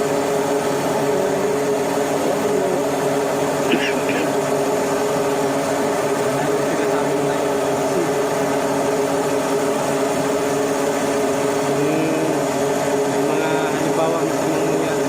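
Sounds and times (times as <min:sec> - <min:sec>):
marine engine droning: 0:00.0 - 0:15.0
faint voices: 0:00.9 - 0:03.1, 0:06.1 - 0:08.9.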